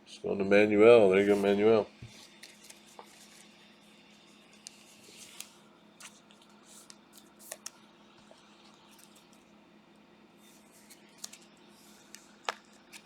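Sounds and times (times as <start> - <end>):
low steady hum: 0.0 - 13.0
trading cards rustling and clicking: 1.2 - 3.5, 4.4 - 7.8, 10.5 - 13.0.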